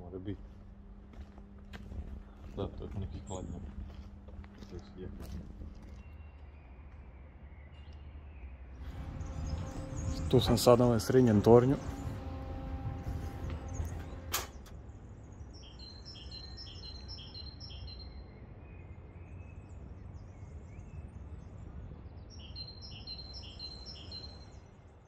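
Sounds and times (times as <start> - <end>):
wind rumble on microphone: 8.8 - 14.4, 18.5 - 23.4.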